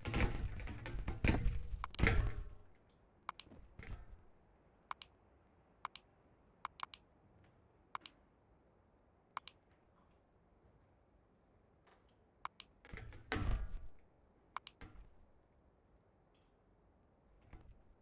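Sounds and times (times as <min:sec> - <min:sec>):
sharp clicks in pairs: 0:01.8 - 0:02.1, 0:03.3 - 0:03.6, 0:04.9 - 0:05.2, 0:05.8 - 0:07.1, 0:08.0 - 0:08.2, 0:09.4 - 0:09.6, 0:12.5 - 0:13.0, 0:14.6 - 0:14.8.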